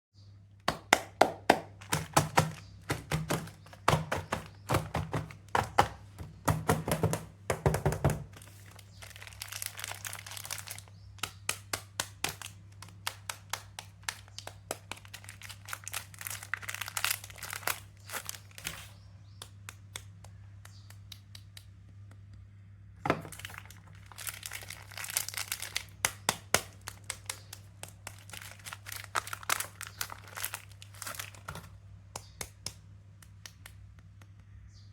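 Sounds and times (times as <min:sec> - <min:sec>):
wrapper crinkling and crackling: 0:01.7 - 0:05.8, 0:08.3 - 0:19.0, 0:23.2 - 0:31.8
low steady hum: 0:08.3 - 0:34.9
sharp clicks and taps: 0:19.3 - 0:22.4.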